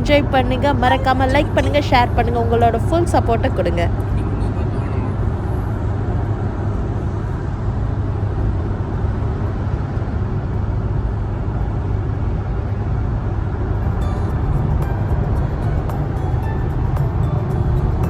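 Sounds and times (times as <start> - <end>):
vehicle rumbling on road: 11.0 - 18.0.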